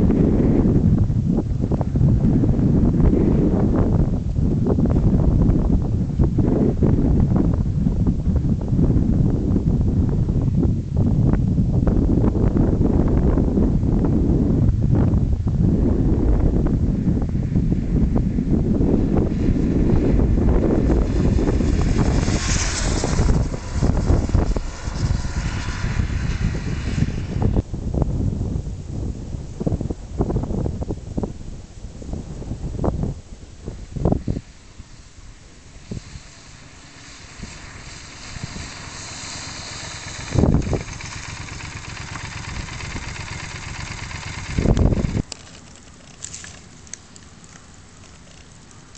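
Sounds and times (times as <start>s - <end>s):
wind buffeting microphone: 0.0s - 48.9s
road noise: 15.4s - 28.6s, 31.9s - 48.9s
motorcycle engine: 19.3s - 27.6s, 33.6s - 46.7s.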